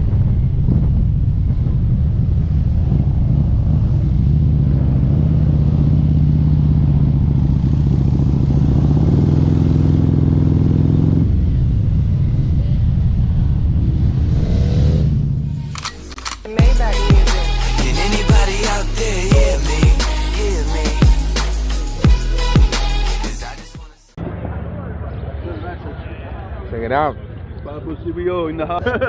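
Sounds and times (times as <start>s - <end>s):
loud motorcycle cruising: 0.0s - 15.4s.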